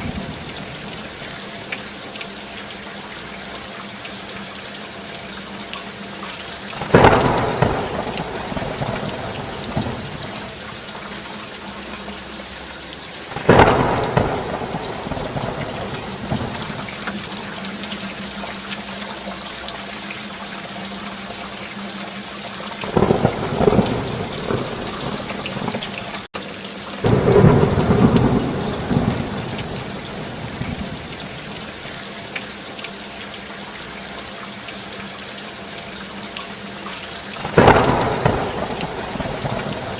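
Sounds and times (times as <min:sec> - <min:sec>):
steady rain: 0:00.0 - 0:39.9
thunder rumbling: 0:06.8 - 0:11.0, 0:13.3 - 0:17.9, 0:22.8 - 0:26.3, 0:27.0 - 0:31.8, 0:37.4 - 0:39.9.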